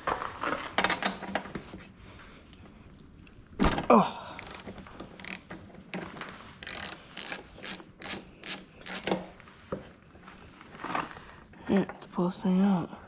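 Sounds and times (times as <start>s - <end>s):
ratchet wrench clicking: 4.4s - 6.0s, 6.6s - 9.4s.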